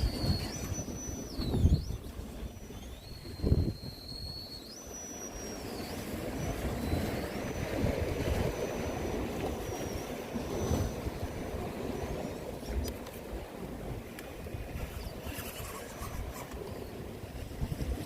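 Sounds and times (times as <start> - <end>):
electric motor whining: 0.0 - 11.2.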